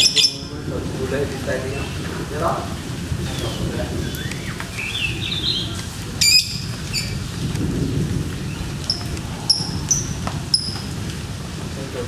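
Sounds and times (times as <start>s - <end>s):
bird shrill squawk: 0.0s - 0.5s
lovebirds chirping: 0.0s - 0.6s, 3.2s - 7.4s, 8.4s - 11.0s
steady rain falling: 0.0s - 12.0s.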